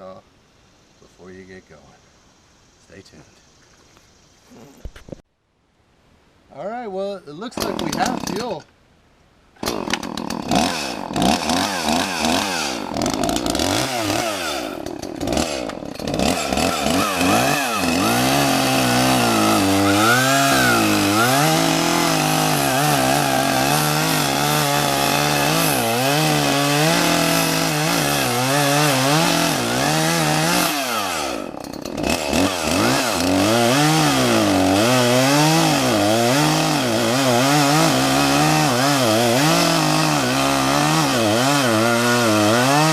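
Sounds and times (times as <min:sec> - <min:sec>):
chainsaw cutting tree trunk: 0:07.5 - 0:08.6, 0:09.6 - 0:42.9.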